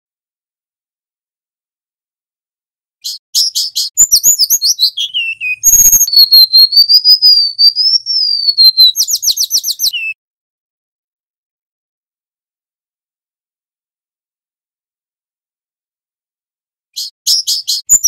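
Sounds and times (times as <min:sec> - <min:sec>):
bird singing trills: 0:03.0 - 0:10.2.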